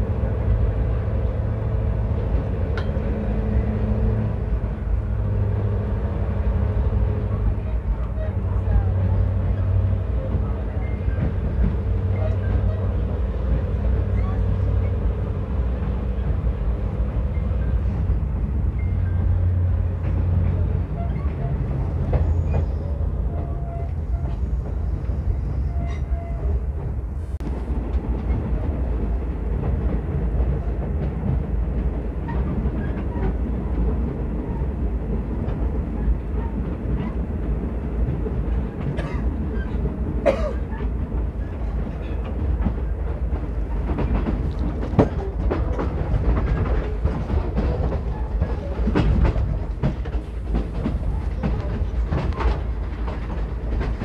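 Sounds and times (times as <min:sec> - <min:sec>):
train rumbling: 0:00.0 - 0:54.0
wheels clicking on track: 0:27.9 - 0:54.0.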